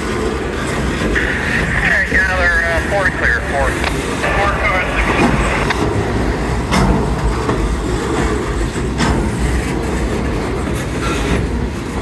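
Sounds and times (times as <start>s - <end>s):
train wheels rumbling on rail: 0.0s - 12.0s
wheels clacking on track: 5.7s - 12.0s.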